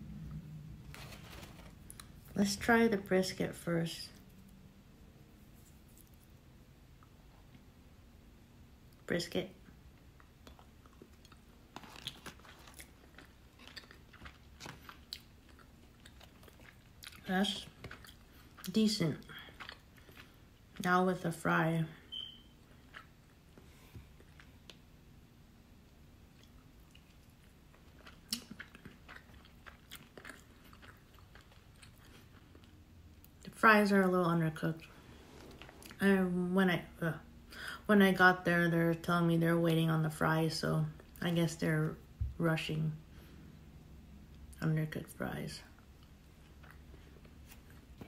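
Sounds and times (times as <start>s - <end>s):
person chewing with mouth closed: 10.2s - 20.9s, 22.1s - 24.8s, 26.3s - 33.4s, 46.0s - 48.0s.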